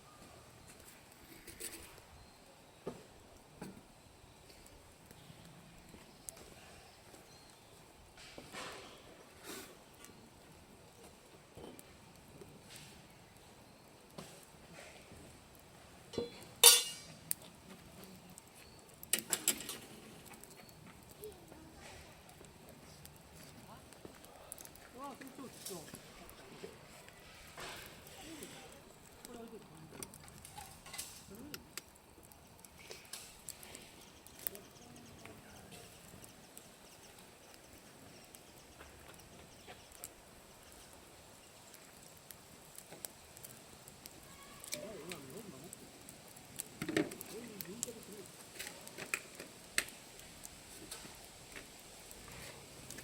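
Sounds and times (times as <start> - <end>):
campfire crackling: 0.0 - 53.0
cookware and tableware clinking: 16.1 - 17.1.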